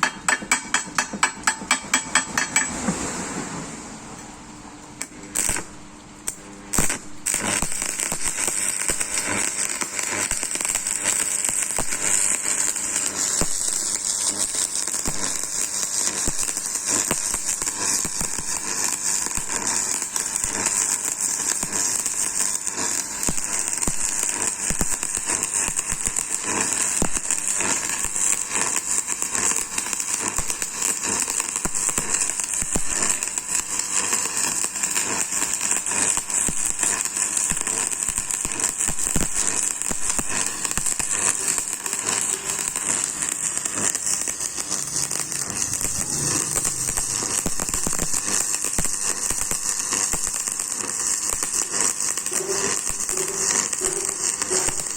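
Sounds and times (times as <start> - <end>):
welding arc crackling: 0.0 - 2.7, 5.0 - 54.9.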